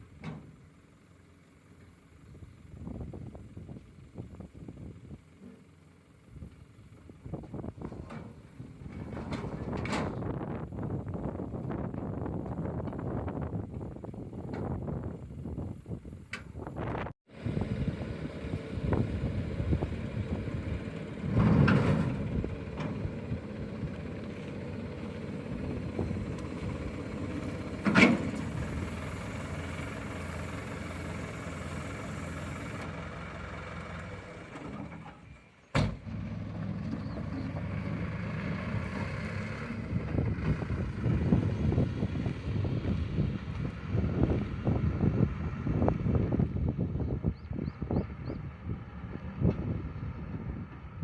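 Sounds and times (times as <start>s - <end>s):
vehicle engine running: 0.0s - 51.0s.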